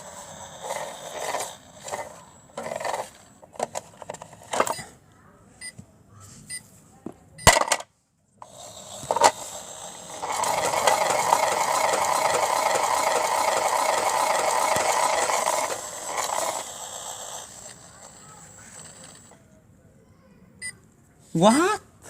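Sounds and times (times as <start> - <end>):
toy bricks rattling in drum: 0.0 - 4.7, 8.4 - 19.3
toy washing machine running: 0.0 - 4.7, 8.4 - 19.4.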